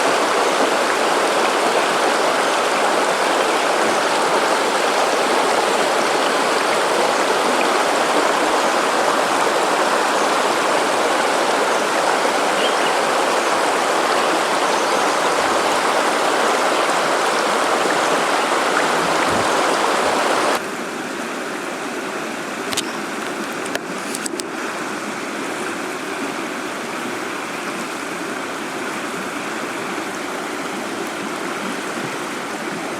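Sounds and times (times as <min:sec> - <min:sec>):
river water flowing: 0:00.0 - 0:32.9.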